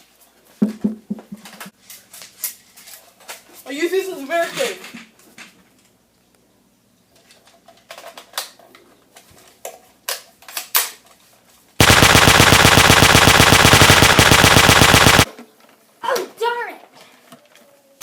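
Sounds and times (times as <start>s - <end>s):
machine-gun fire: 11.8s - 15.3s
sharp clicks and pops: 11.8s - 15.3s.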